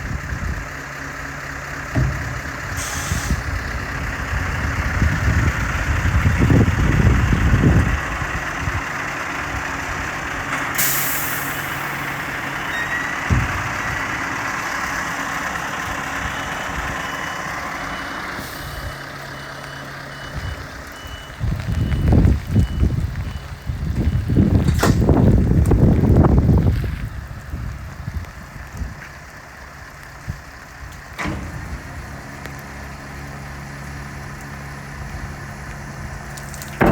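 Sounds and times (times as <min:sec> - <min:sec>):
truck diesel engine rumbling: 0:00.0 - 0:36.9
air brake hiss: 0:02.7 - 0:03.5, 0:10.7 - 0:12.2, 0:18.3 - 0:19.0
reversing beeper: 0:10.8 - 0:13.9, 0:16.2 - 0:24.2.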